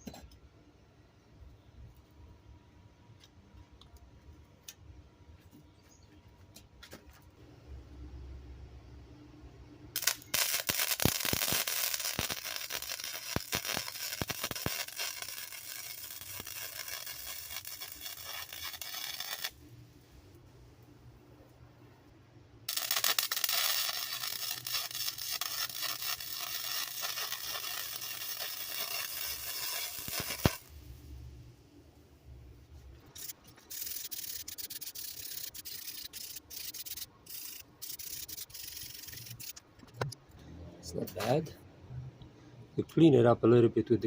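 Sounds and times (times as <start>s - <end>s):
welder arc crackling and sizzling: 10.0s - 19.6s, 22.7s - 31.2s, 33.2s - 39.6s.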